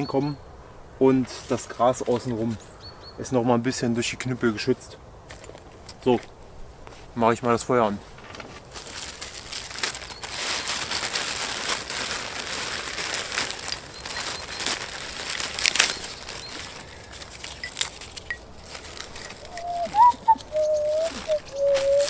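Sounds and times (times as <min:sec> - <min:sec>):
dry material rustling and crinkling: 0:08.0 - 0:22.0.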